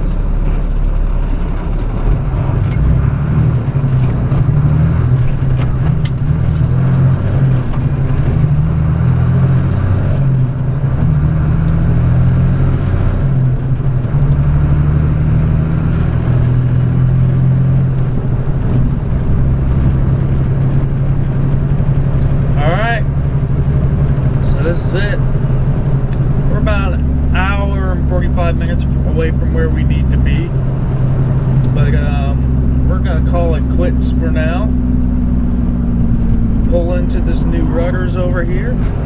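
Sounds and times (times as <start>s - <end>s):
road noise: 0.0s - 39.0s
truck engine droning: 0.0s - 39.0s.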